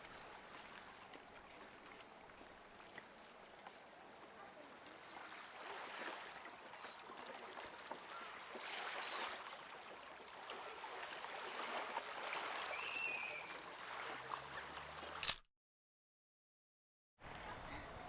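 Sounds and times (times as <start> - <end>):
water lapping at shore: 0.0 - 15.4
bird chirp: 12.8 - 13.5
sharp click: 15.2 - 15.5.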